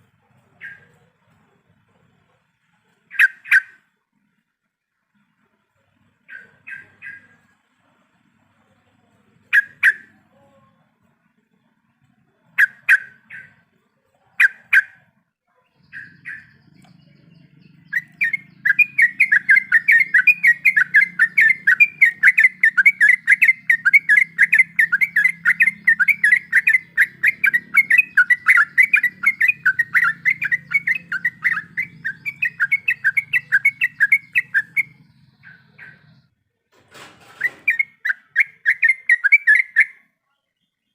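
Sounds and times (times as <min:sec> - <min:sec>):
bulbul calling: 0:00.0 - 0:01.2, 0:03.0 - 0:03.9, 0:06.3 - 0:07.5, 0:09.4 - 0:10.4, 0:12.5 - 0:13.7, 0:14.3 - 0:15.1, 0:15.7 - 0:36.3, 0:37.3 - 0:40.0.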